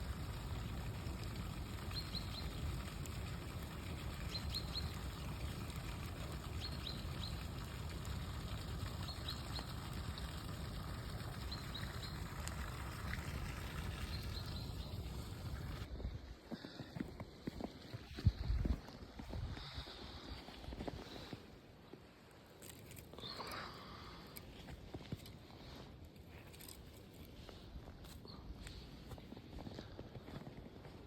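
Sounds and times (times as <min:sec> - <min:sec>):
small bird chirping: 0:04.3 - 0:05.6.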